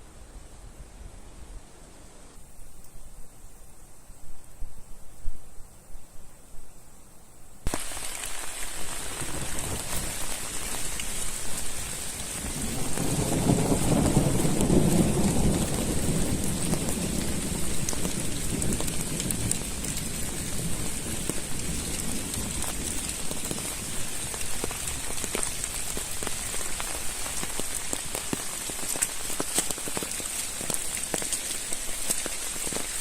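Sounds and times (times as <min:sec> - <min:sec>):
thunder rumbling: 0:07.7 - 0:31.2
heavy rain: 0:07.7 - 0:33.0.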